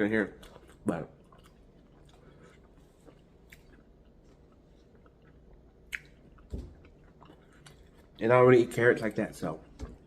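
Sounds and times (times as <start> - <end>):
faint chewing of food: 0.0 - 10.0
mouth clicks: 5.8 - 6.2.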